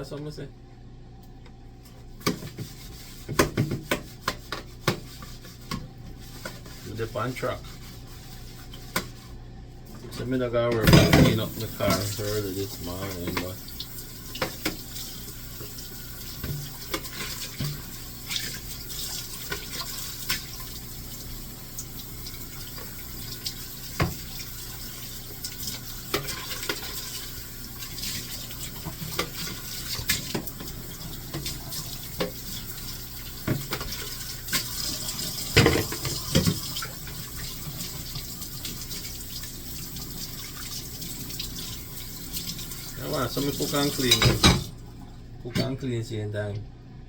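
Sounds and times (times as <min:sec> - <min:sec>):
tap running into sink: 0:22.8 - 0:24.4, 0:33.4 - 0:39.0
dishes clinking and knocking: 0:44.0 - 0:44.7.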